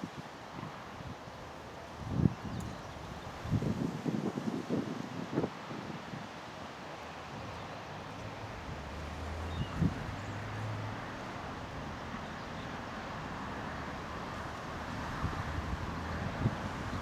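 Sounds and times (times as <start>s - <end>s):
wind buffeting microphone: 2.0s - 6.3s, 7.3s - 17.0s
diesel locomotive engine humming: 7.9s - 17.0s.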